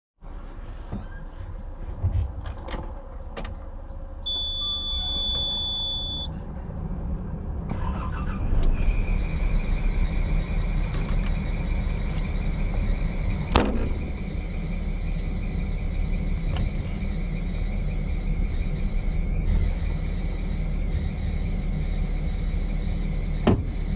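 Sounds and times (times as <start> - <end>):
high beep: 4.3 - 6.3
high-pitched whine: 8.1 - 23.9.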